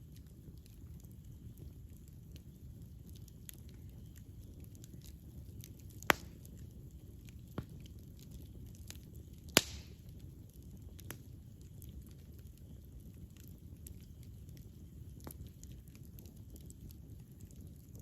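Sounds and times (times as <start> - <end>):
campfire rumbling and crackling: 0.0 - 18.0
sharp loud fire pops: 9.6 - 10.0.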